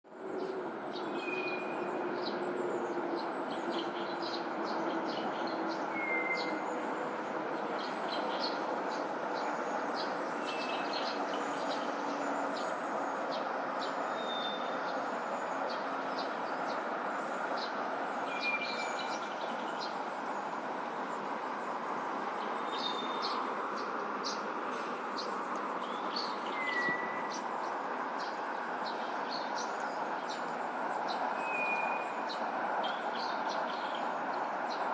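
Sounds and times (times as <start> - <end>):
songbird whistled notes: 26.5 - 27.4.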